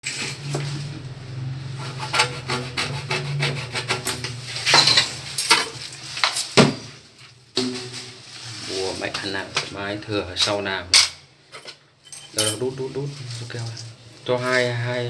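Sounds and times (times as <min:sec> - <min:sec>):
tool scraping a hard surface: 0:00.0 - 0:06.7.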